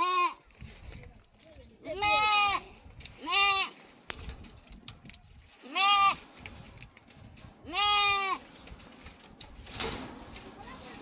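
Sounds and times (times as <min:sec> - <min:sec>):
sheep or goats bleating: 0:00.0 - 0:00.5, 0:01.8 - 0:03.8, 0:05.6 - 0:06.2, 0:07.7 - 0:08.4.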